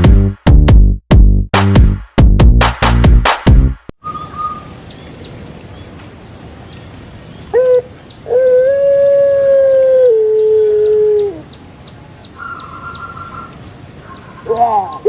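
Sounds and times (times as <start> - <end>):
faint bird chirps: 4.0 - 5.5, 12.3 - 15.0
animal howling: 7.5 - 11.5, 12.4 - 15.0.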